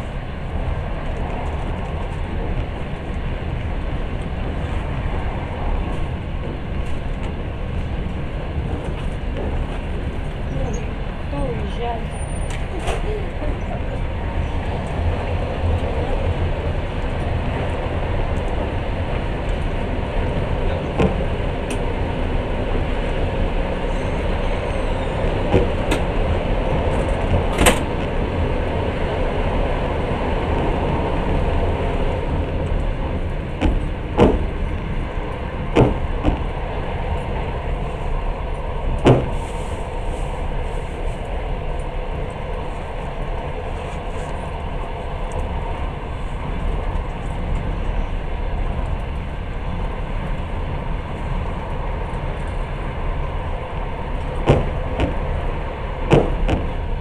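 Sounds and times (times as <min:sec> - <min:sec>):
train rumble inside carriage: 0:00.0 - 0:57.0
sharp knocks: 0:33.6 - 0:34.5, 0:35.7 - 0:36.5, 0:39.0 - 0:39.4, 0:54.4 - 0:55.2, 0:56.1 - 0:56.8.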